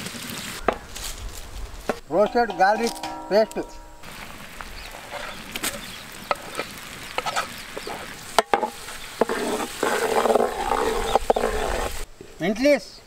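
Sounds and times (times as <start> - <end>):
ladle scraping metal pot: 2.2 - 12.0
garlic sizzling in oil: 4.0 - 12.0.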